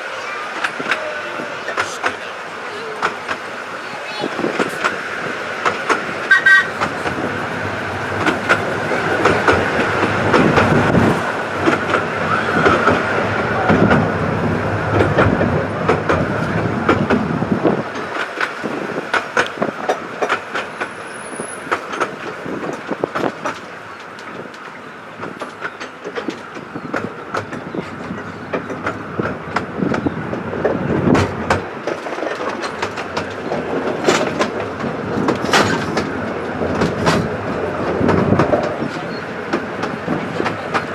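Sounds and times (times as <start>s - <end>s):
train carriage rumbling on track: 0.0s - 40.9s
wheel squeal: 5.8s - 10.0s
wheel clicks over rail joints: 17.9s - 40.9s.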